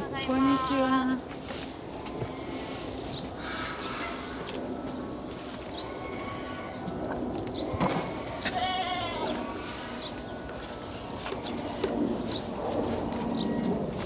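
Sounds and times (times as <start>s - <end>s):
bleat-like animal call: 7.8s - 9.6s.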